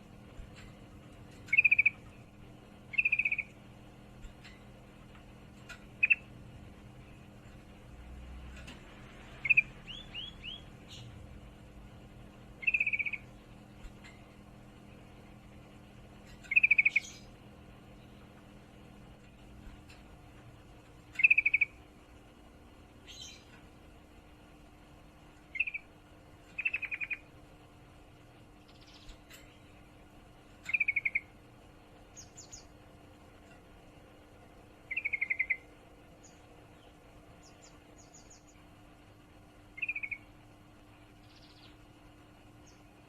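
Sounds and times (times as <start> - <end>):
steady low hum: 0.0 - 43.0
faint high bird chirps: 1.3 - 2.2, 2.9 - 3.6, 5.7 - 6.3, 9.3 - 11.2, 12.6 - 14.4, 16.2 - 17.4, 21.1 - 21.8, 25.5 - 27.3, 28.6 - 29.8, 30.6 - 31.4, 32.1 - 32.8, 34.9 - 38.6, 39.7 - 40.4, 41.1 - 41.9
bird chattering trills: 1.4 - 3.6, 5.7 - 6.4, 9.3 - 11.2, 12.6 - 14.3, 16.2 - 17.4, 21.1 - 21.8, 25.5 - 27.4, 30.6 - 31.4, 34.8 - 38.6, 39.8 - 40.4, 41.2 - 41.8.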